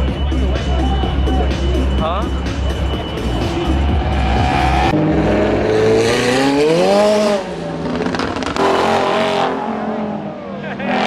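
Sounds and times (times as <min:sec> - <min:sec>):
car engine revving hard: 0:03.9 - 0:11.0.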